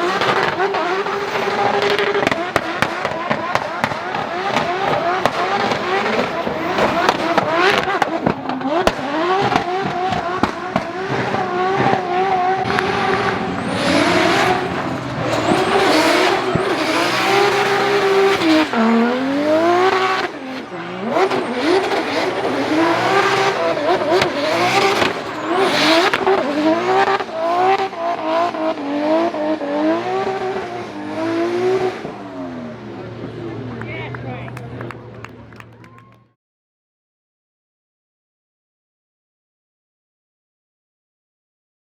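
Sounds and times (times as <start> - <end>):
rally car engine revving: 0.0 - 35.8
tyres on loose gravel: 12.6 - 26.8.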